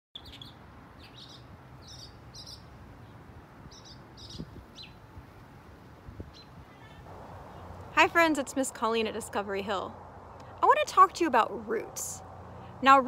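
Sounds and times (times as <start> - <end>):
small birds chirping: 0.2 - 5.0, 5.8 - 7.9.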